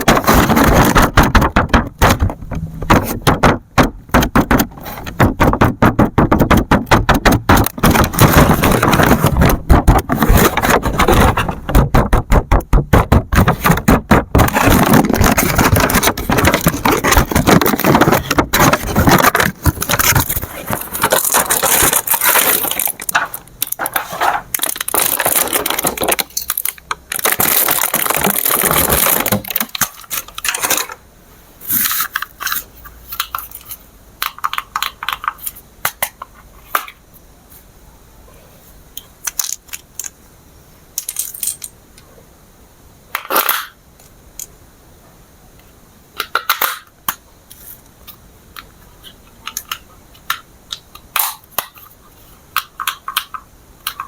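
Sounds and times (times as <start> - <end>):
plastic parts clicking: 0.0 - 31.0, 31.7 - 37.0, 39.2 - 40.2, 49.4 - 51.9, 52.6 - 54.0
plastic packaging crinkling: 7.6 - 11.6, 13.4 - 31.0.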